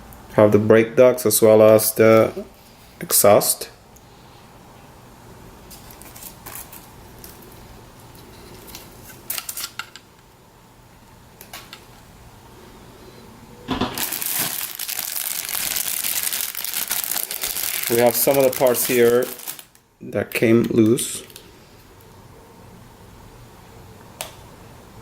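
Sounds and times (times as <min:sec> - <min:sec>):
plastic bag crinkling: 0:05.7 - 0:10.0, 0:13.7 - 0:19.9, 0:20.6 - 0:21.6.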